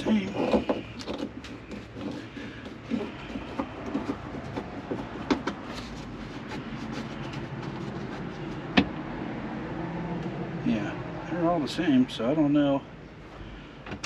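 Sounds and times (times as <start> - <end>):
hand tools clicking and knocking: 0.0 - 7.8.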